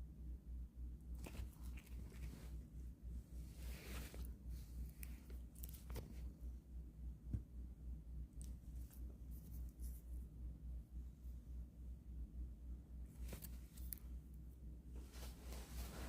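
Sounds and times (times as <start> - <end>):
cat playing rustles and taps: 1.2 - 2.7, 3.3 - 6.4, 15.0 - 16.0.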